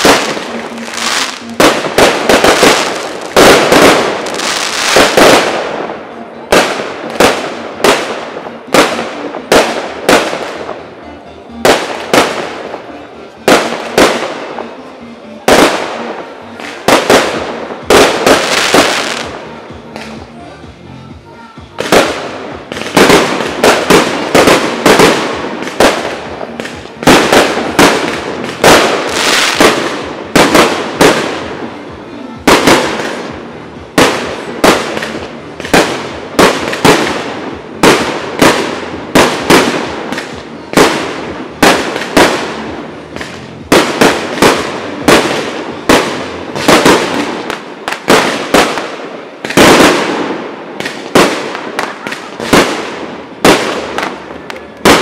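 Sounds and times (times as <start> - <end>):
firework shells bursting and crackling: 0.0 - 10.8.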